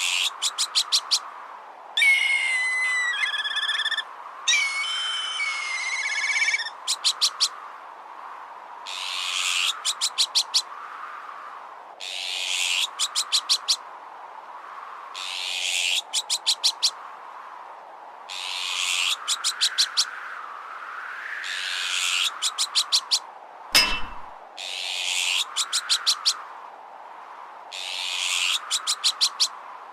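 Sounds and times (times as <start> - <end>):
whistling wind: 0.0 - 12.0, 12.8 - 29.9
magpie alarm calls: 2.0 - 7.5.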